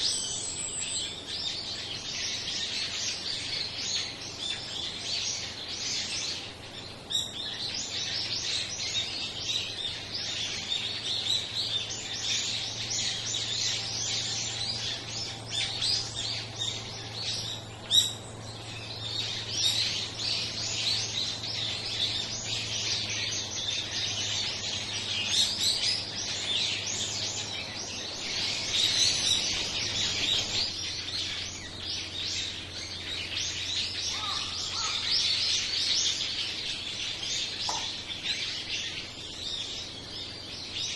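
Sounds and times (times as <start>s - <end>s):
flock of small birds chirping: 0.0s - 40.9s
sharp tap: 37.6s - 38.0s.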